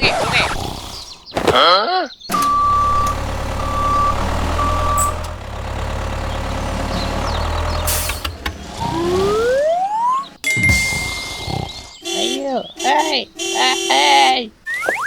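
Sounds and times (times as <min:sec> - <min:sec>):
reversing alarm beeps: 0:02.3 - 0:05.4
heavy vehicle engine running: 0:02.3 - 0:10.8.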